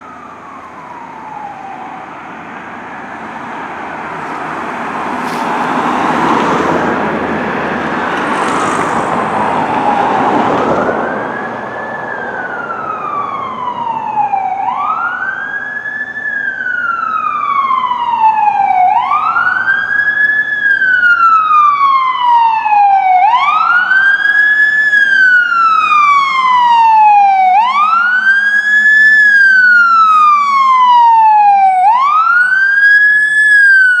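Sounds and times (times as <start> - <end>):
fire engine siren wailing: 0.0 - 34.0
loud rush of noise: 2.2 - 12.4.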